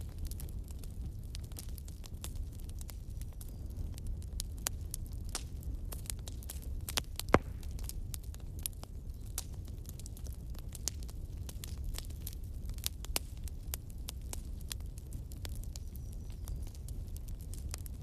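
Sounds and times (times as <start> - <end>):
wood fire crackling and popping: 0.0 - 18.0
steady low rumble: 6.7 - 8.4.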